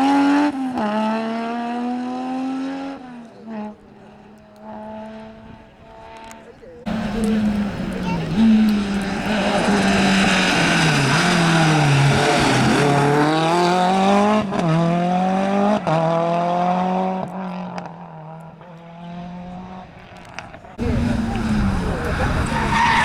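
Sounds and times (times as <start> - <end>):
rally car engine accelerating: 0.0 - 23.0
gear shift crack: 6.2 - 14.4, 20.0 - 23.0.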